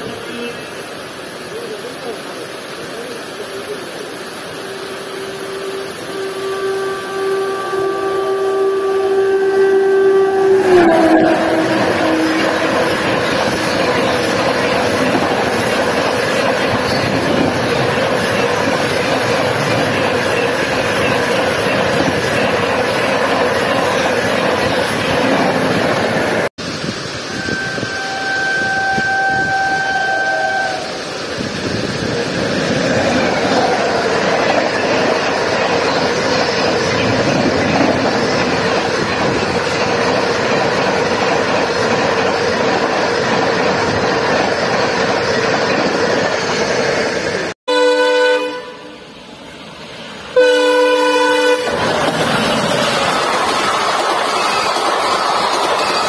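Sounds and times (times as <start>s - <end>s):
heavy rain: 0.0s - 23.4s
train coaches rushing past: 0.0s - 47.6s, 48.4s - 56.0s
train horn blast: 4.5s - 14.4s, 27.3s - 31.1s, 47.7s - 49.1s, 50.4s - 51.9s.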